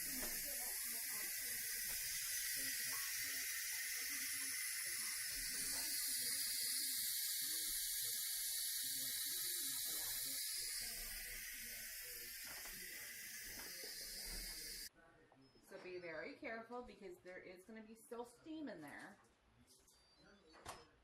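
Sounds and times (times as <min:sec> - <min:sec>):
pressure valve venting steam: 0:00.0 - 0:14.9.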